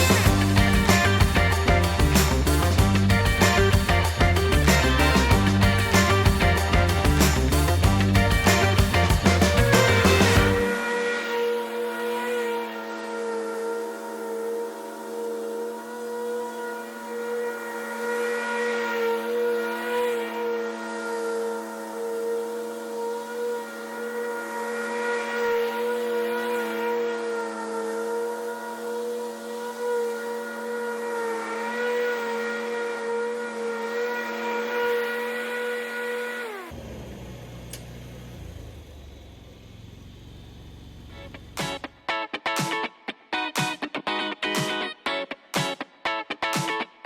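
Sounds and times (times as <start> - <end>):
low engine rumble: 0.0 - 10.7, 36.7 - 42.0
ride-on mower running: 0.0 - 42.7.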